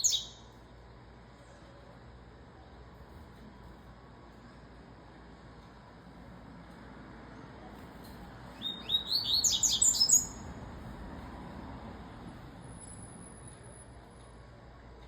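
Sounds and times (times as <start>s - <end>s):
bird singing high notes: 8.6s - 10.4s.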